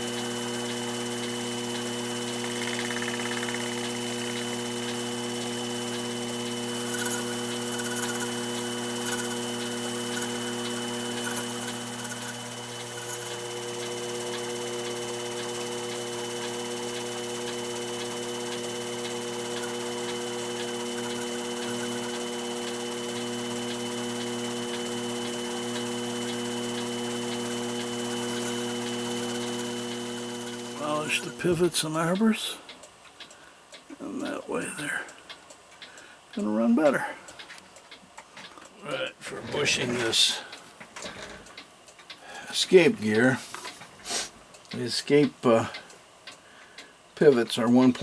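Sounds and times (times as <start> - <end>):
small electric motor humming: 0.0 - 32.6
faint regular ticking: 0.1 - 48.0.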